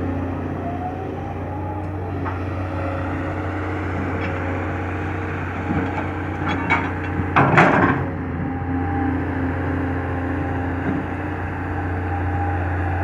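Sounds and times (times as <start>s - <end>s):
diesel engine running: 0.0s - 13.0s
knocking and scraping: 5.6s - 8.0s.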